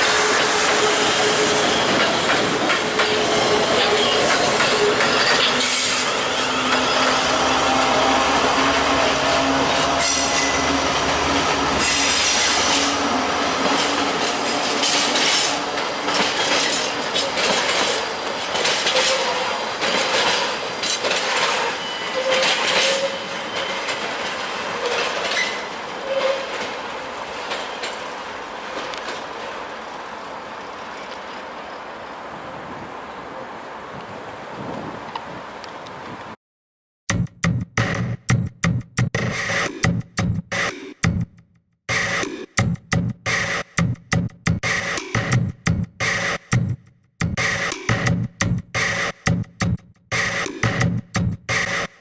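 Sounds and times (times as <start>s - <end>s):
train rumbling past: 0.0s - 36.4s
wheels clattering over rail joints: 11.8s - 29.5s
wheel squeals: 18.8s - 19.5s, 20.9s - 24.1s, 24.8s - 26.7s.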